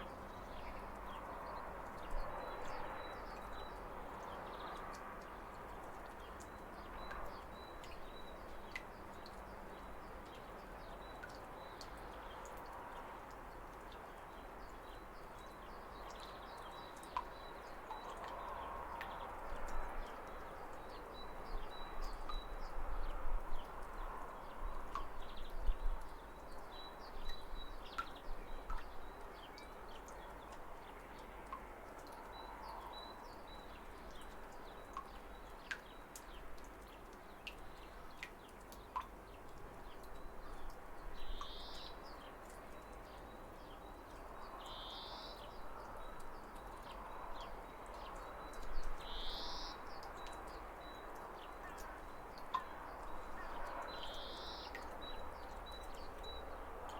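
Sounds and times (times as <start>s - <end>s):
small waterfall splashing: 23.6s - 56.9s.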